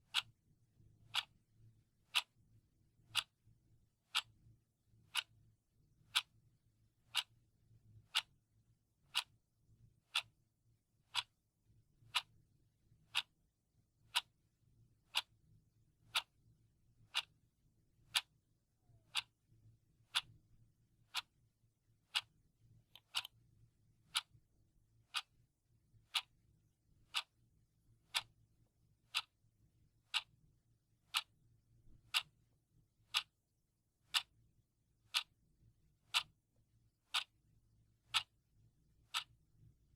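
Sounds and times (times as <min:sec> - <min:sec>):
clock ticking: 0:00.0 - 0:00.3, 0:01.1 - 0:01.3, 0:02.1 - 0:02.4, 0:03.1 - 0:03.4, 0:04.0 - 0:04.3, 0:05.1 - 0:05.3, 0:06.1 - 0:06.3, 0:07.1 - 0:07.3, 0:08.0 - 0:08.3, 0:09.1 - 0:09.3, 0:10.1 - 0:10.3, 0:11.0 - 0:11.4, 0:12.0 - 0:12.3, 0:13.1 - 0:13.3, 0:14.1 - 0:14.3, 0:15.0 - 0:15.3, 0:16.0 - 0:16.4, 0:17.1 - 0:17.3, 0:18.1 - 0:18.3, 0:19.0 - 0:19.4, 0:20.0 - 0:20.4, 0:21.1 - 0:21.4, 0:22.1 - 0:23.4, 0:24.0 - 0:24.4, 0:25.1 - 0:25.3, 0:26.0 - 0:26.3, 0:27.0 - 0:27.4, 0:28.0 - 0:28.4, 0:29.1 - 0:29.3, 0:30.0 - 0:30.3, 0:31.1 - 0:31.3, 0:32.0 - 0:32.4, 0:33.1 - 0:33.4, 0:34.1 - 0:34.3, 0:35.1 - 0:35.3, 0:36.1 - 0:36.4, 0:37.1 - 0:37.3, 0:38.0 - 0:38.4, 0:39.0 - 0:39.4.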